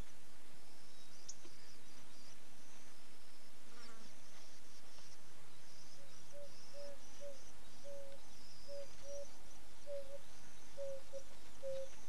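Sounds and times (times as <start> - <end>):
faint high-pitched chirping: 0.0 - 12.0
bird calling low notes: 3.8 - 12.0.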